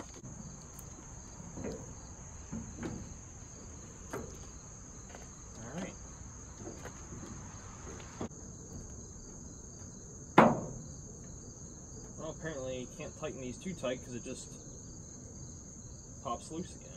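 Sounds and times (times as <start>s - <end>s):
insects droning: 0.0s - 16.9s
loud knock of plastic part: 10.4s - 10.7s.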